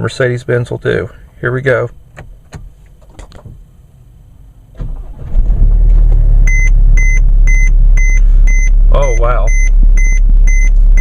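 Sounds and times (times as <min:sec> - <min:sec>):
diesel engine running: 0:03.8 - 0:11.0
warning chime beeping: 0:06.5 - 0:11.0.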